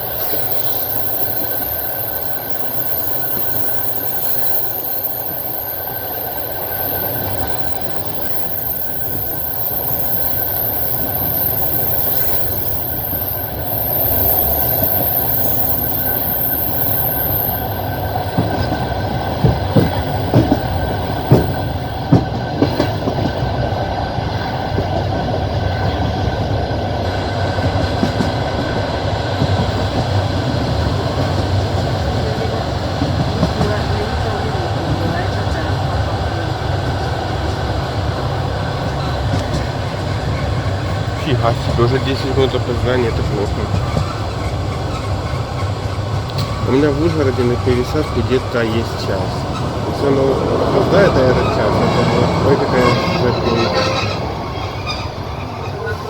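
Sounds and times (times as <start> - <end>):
faint high whine: 0.0 - 22.1
train wheels rumbling on rails: 0.0 - 56.0.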